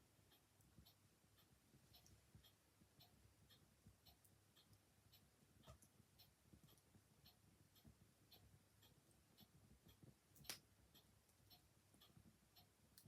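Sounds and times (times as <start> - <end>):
mechanical clock ticking: 0.0 - 13.0
wood fire crackling: 9.6 - 10.8.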